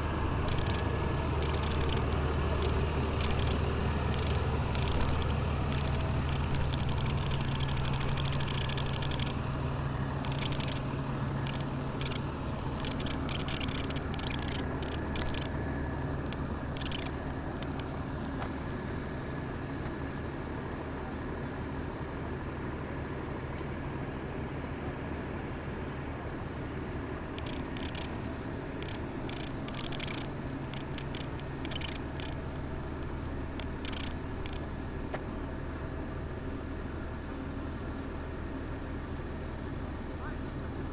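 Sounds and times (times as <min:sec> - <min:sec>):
vehicle engine idling: 0:00.0 - 0:40.9
high rattling noise: 0:00.5 - 0:12.2, 0:12.8 - 0:17.9, 0:27.4 - 0:34.7.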